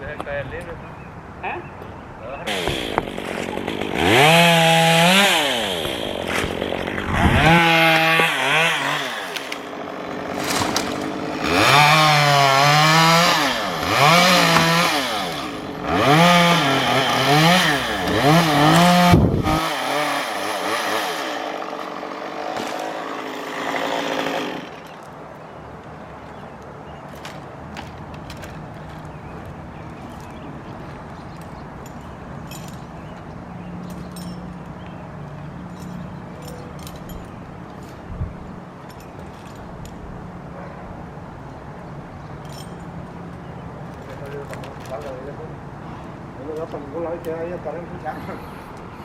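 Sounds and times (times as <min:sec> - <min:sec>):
chainsaw revving: 0:02.5 - 0:25.0.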